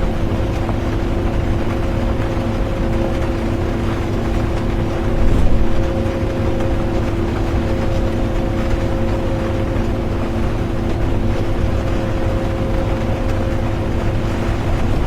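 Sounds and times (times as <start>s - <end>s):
bus engine and road rumble: 0.0s - 15.0s
constant humming tone: 0.0s - 15.0s.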